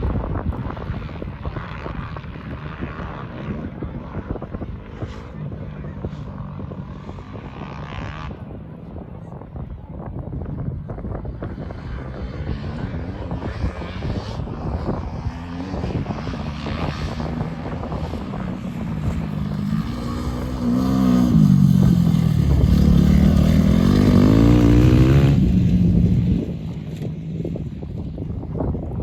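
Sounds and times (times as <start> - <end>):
dirt bike engine revving: 15.5 - 26.5.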